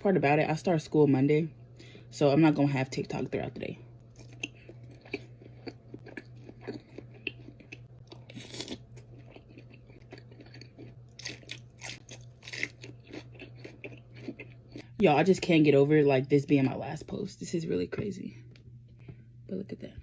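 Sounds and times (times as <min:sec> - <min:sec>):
steady low hum: 0:00.0 - 0:20.0
wet chewing and smacking: 0:04.0 - 0:15.0.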